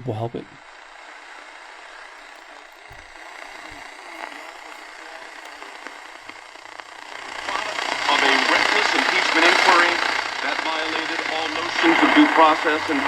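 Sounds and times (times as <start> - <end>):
faint radio talk: 0.0 - 13.0
radio static hiss: 0.0 - 13.0.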